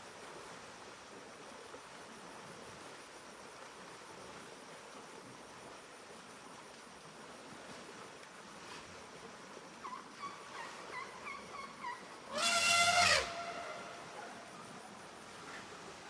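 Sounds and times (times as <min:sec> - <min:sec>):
short high chirping calls: 0:10.6 - 0:14.6
elephant trumpeting: 0:11.0 - 0:14.8.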